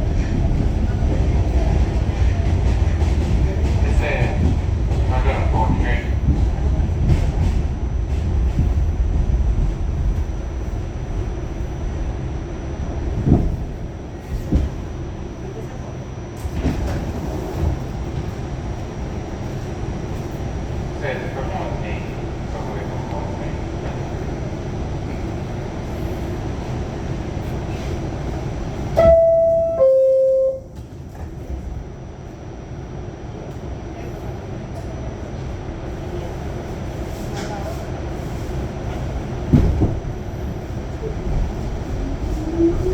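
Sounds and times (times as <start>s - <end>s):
subway car rumbling on track: 0.0s - 42.9s
two-note door chime: 29.0s - 30.7s.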